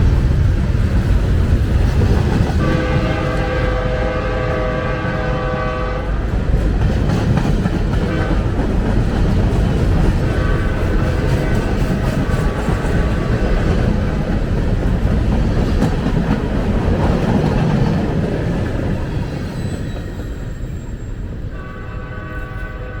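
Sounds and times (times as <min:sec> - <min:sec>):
freight train rumbling past: 0:00.0 - 0:23.0.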